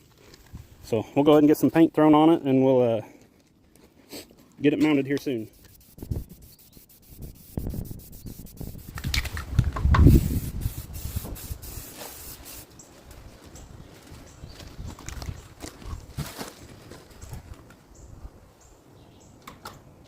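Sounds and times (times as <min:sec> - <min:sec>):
paint spray hissing: 0:05.4 - 0:09.4, 0:10.0 - 0:12.7.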